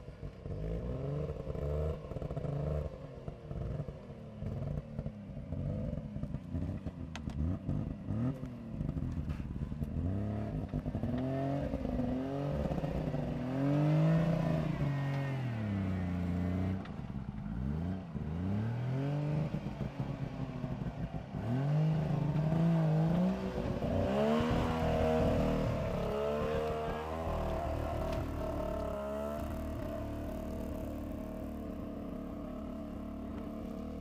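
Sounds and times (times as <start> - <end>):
off-road vehicle engine revving: 0.4 - 34.0.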